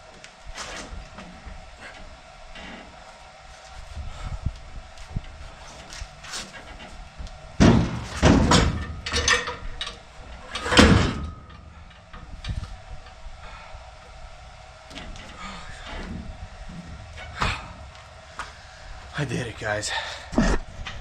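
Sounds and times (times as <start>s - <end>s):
metal clanks and scrapes: 5.5s - 7.0s, 7.6s - 12.8s.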